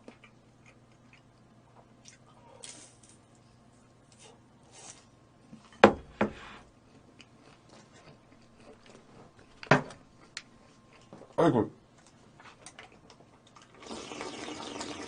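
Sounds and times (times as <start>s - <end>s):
eating and food handling: 6.7s - 15.0s.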